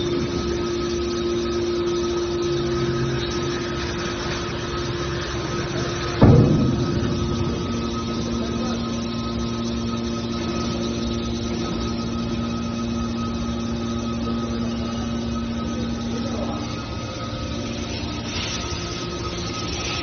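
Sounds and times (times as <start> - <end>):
hydraulic power unit humming: 0.0 - 20.0
loud knock: 6.2 - 9.7.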